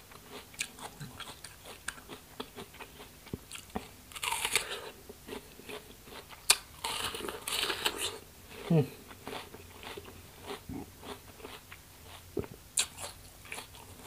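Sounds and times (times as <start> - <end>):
person chewing crisp fruit: 0.0 - 14.0
crunchy bite into fruit: 3.5 - 5.0.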